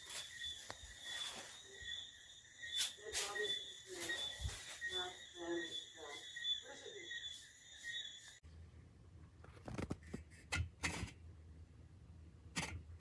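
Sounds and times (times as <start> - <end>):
faint high whine: 0.0 - 8.4.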